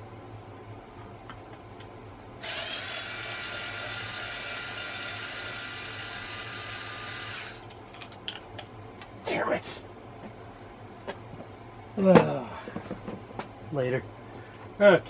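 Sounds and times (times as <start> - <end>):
electric screwdriver motor whirring: 2.4 - 7.7.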